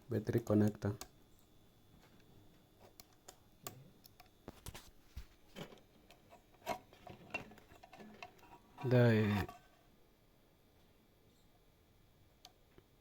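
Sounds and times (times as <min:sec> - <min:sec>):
small clicks of repair tools: 0:02.1 - 0:04.8, 0:12.4 - 0:12.9.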